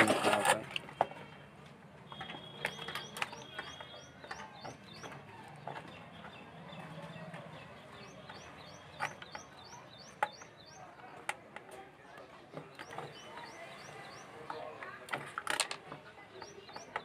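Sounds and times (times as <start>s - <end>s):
small bird chirping: 2.1s - 10.9s.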